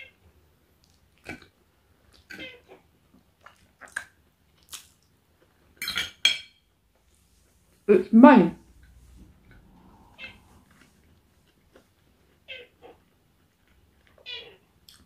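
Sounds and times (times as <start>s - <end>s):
wet mouth smacks chewing: 3.4s - 5.1s.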